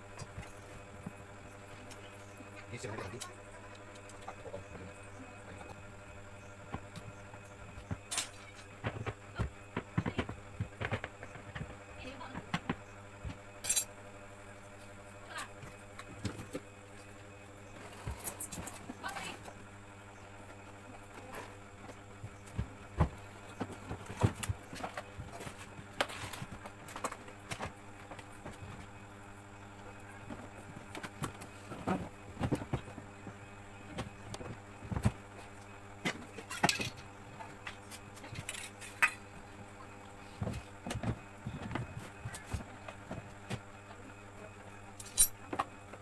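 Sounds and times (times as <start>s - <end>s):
low steady hum: 0.0s - 46.0s
clicks and knocks of tools: 13.6s - 13.9s
metal parts and tools clinking: 13.6s - 13.9s, 45.0s - 45.4s.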